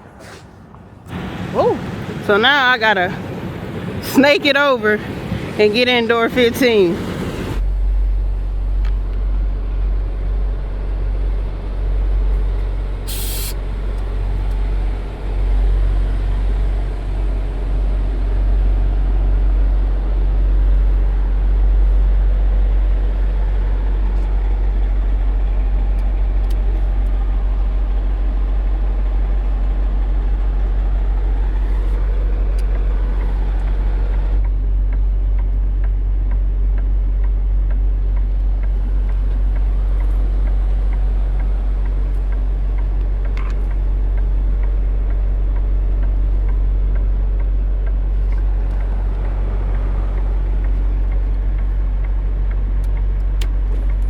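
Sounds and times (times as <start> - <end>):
truck diesel engine running: 1.0 - 54.0
air brake hiss: 13.1 - 13.6.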